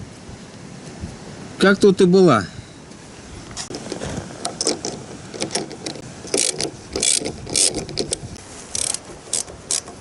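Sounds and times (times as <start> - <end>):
ratchet wrench clicking: 4.6 - 10.0.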